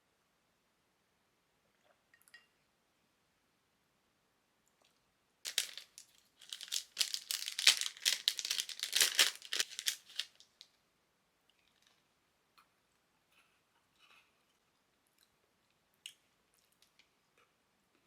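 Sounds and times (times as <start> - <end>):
wrapper crinkling and tearing: 5.5 - 10.6.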